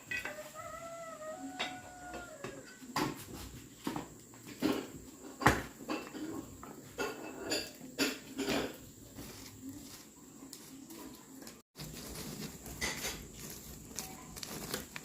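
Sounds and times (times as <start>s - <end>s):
dishes and utensils clinking: 0.0s - 0.6s, 1.4s - 9.4s, 12.4s - 13.6s.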